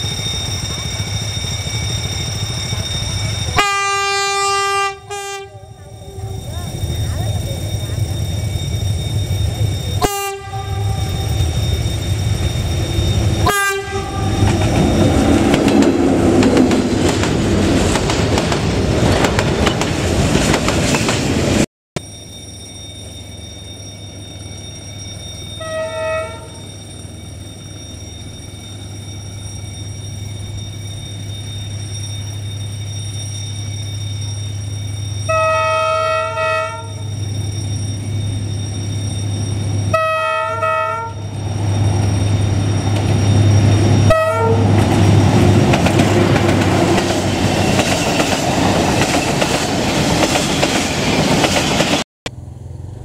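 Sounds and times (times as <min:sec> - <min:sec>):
diesel locomotive engine droning: 0:00.0 - 0:53.0
locomotive horn blasts: 0:03.6 - 0:05.8, 0:10.0 - 0:11.3, 0:13.4 - 0:14.5, 0:25.6 - 0:26.6, 0:35.3 - 0:37.0, 0:39.9 - 0:41.2, 0:44.0 - 0:44.7
freight wagons rumbling past: 0:04.9 - 0:21.6
clattering train wheels: 0:05.7 - 0:10.2, 0:11.0 - 0:21.6, 0:41.5 - 0:52.0.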